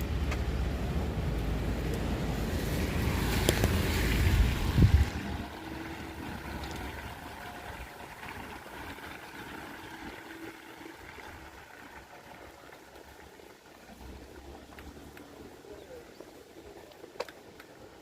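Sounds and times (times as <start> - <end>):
rain on wet street: 0.0 - 18.0
wind buffeting microphone: 0.1 - 10.3.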